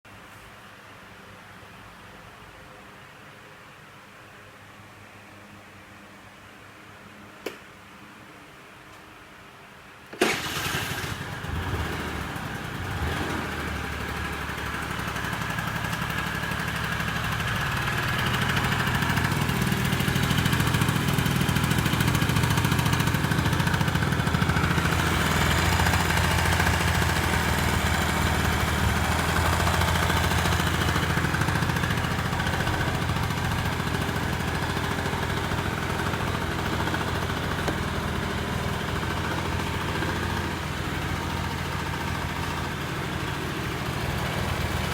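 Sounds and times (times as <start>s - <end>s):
scooter engine idling: 10.2s - 44.9s.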